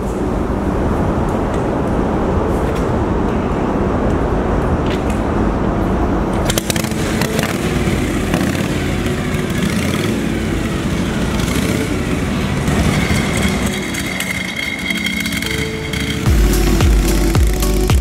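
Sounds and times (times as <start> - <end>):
motorcycle engines running loudly: 0.0 - 18.0.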